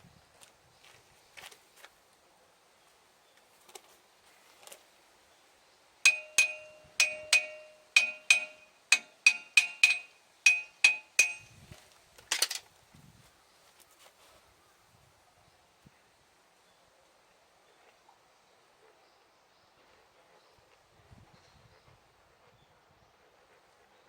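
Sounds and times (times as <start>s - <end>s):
hammer striking metal: 6.1s - 11.6s
rough metal clatter: 6.1s - 11.6s.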